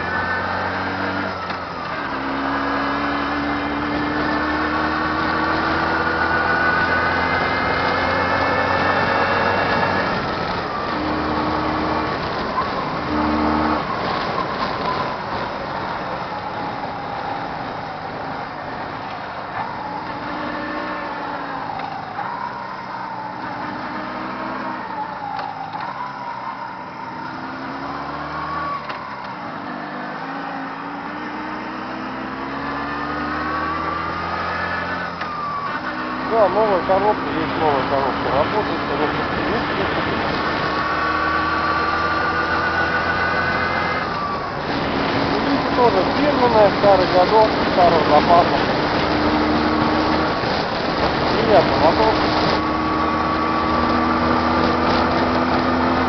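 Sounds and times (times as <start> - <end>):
motorcycle engine running: 42.2 - 56.0.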